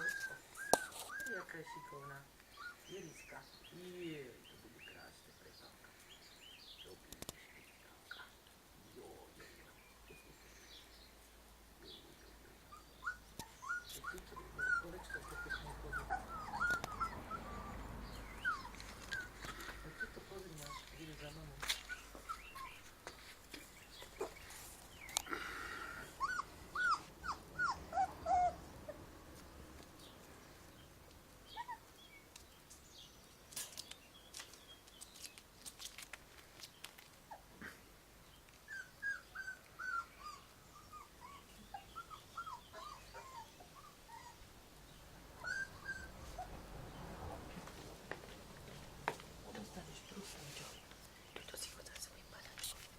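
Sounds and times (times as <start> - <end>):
puppies whimpering: 0.0 - 3.4, 12.7 - 22.9, 25.3 - 29.0, 31.5 - 32.0, 38.6 - 44.4, 45.4 - 46.6
shuffling: 13.6 - 25.6, 47.2 - 52.9.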